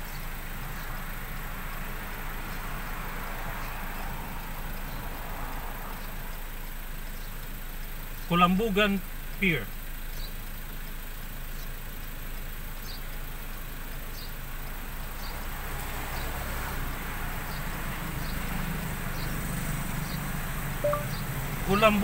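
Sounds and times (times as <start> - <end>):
car engine humming: 0.0 - 22.0
faint high chirps: 20.8 - 21.3.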